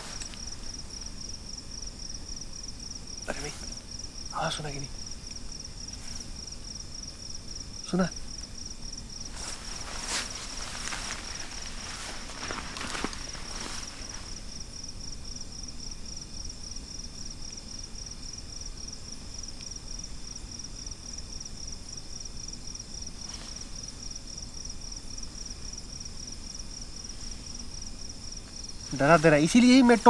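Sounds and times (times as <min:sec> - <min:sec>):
brief rustles: 0:00.0 - 0:00.8, 0:09.3 - 0:14.5
crickets chirping: 0:00.0 - 0:30.0.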